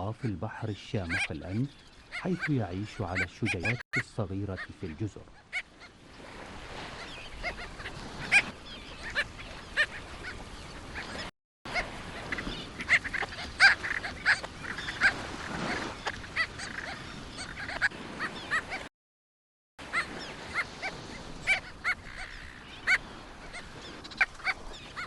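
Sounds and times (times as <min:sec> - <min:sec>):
terns calling harshly: 0:00.0 - 0:05.9.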